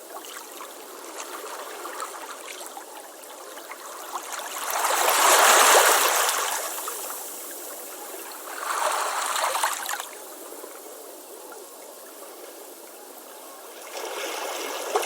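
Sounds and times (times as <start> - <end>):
ocean waves washing onto beach: 3.5 - 11.3.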